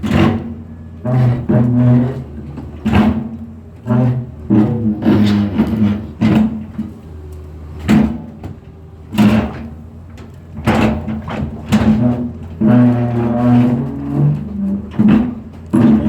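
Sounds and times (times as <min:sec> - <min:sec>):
drilling machine droning: 0:00.0 - 0:16.0.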